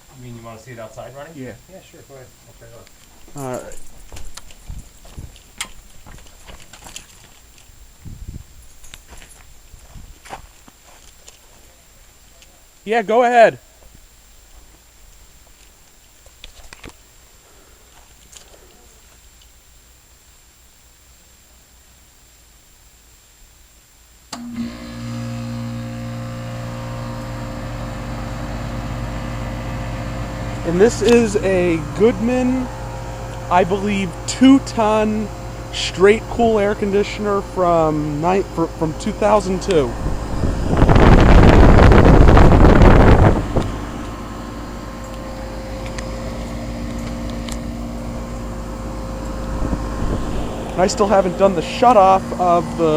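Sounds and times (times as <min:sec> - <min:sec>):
air conditioner humming: 0:00.0 - 0:24.4, 0:25.1 - 0:52.9
wind buffeting microphone: 0:04.0 - 0:06.7, 0:07.8 - 0:10.5, 0:39.8 - 0:44.1, 0:49.4 - 0:50.9.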